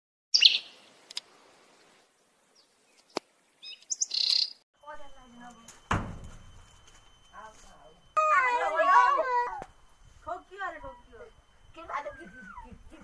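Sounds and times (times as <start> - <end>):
bird chirping: 0.3 - 0.9, 2.5 - 5.7.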